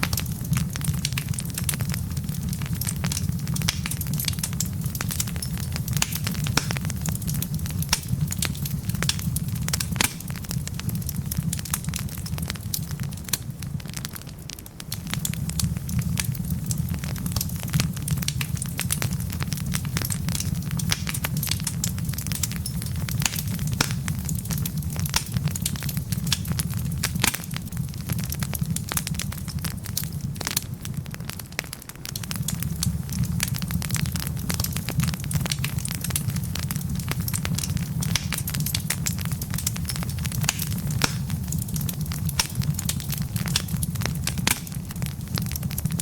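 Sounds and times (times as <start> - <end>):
low rumble of flames: 0.0 - 46.0
wood logs crackling: 0.0 - 46.0.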